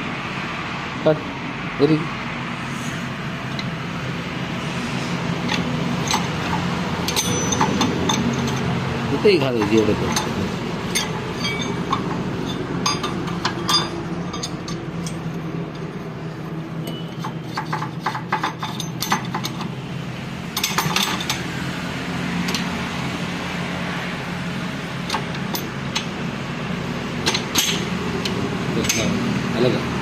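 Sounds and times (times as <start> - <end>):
metal tools clinking and tapping: 5.5 - 8.7, 9.5 - 16.1, 16.8 - 19.7, 20.6 - 21.4, 25.1 - 26.2, 27.2 - 29.2.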